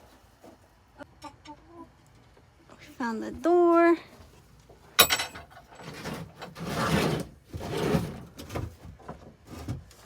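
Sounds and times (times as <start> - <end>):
wood scraping and rubbing: 5.8 - 10.0.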